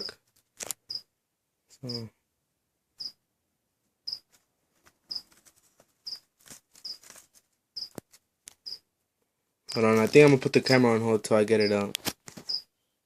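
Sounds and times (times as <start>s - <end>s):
cricket chirping: 6.0s - 6.2s.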